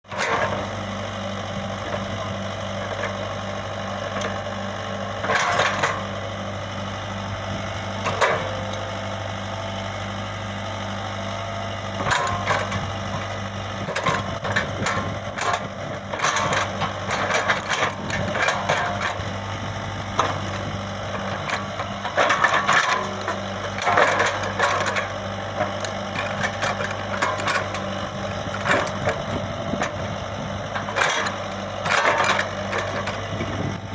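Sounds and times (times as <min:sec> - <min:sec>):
excavator diesel engine running: 0:00.0 - 0:33.9
metal parts clanking and rattling: 0:05.2 - 0:06.1, 0:12.0 - 0:13.2, 0:13.8 - 0:19.2, 0:20.2 - 0:30.1, 0:30.7 - 0:33.2.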